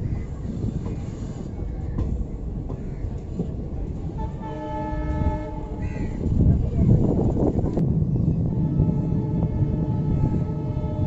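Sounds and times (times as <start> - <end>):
train rumbling on rails: 0.0 - 11.0
train horn: 4.1 - 5.9, 8.5 - 11.0.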